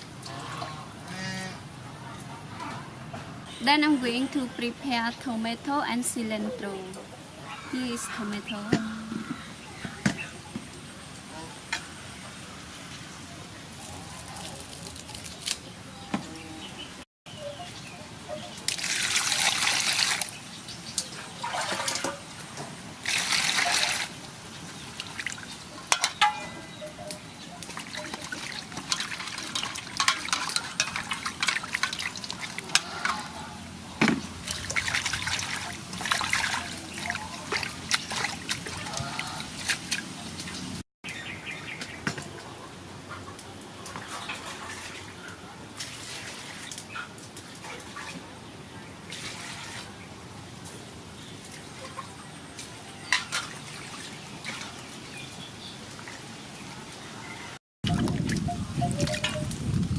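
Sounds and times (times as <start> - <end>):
splashing in a sink: 18.7 - 20.5, 21.1 - 22.2, 23.0 - 24.2, 27.8 - 33.2, 34.2 - 40.6.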